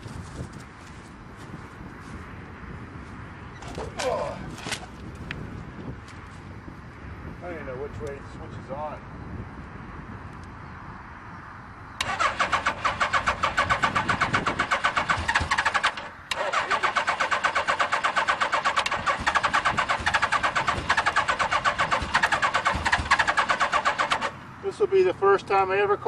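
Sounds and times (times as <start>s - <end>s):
electric starter cranking engine: 12.0s - 24.4s.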